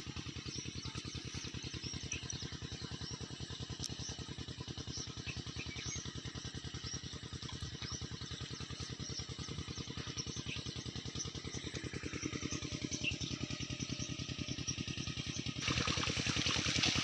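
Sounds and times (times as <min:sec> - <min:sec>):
water pump engine chugging: 0:00.0 - 0:17.0.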